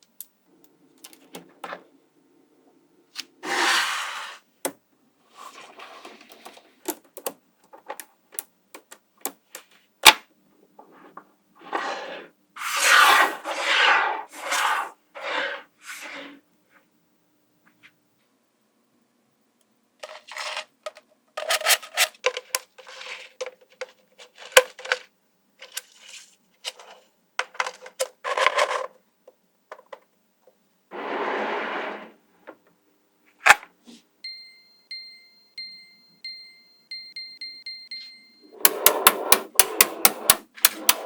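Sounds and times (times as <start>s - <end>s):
magnetic balls clicking: 37.4s - 41.0s.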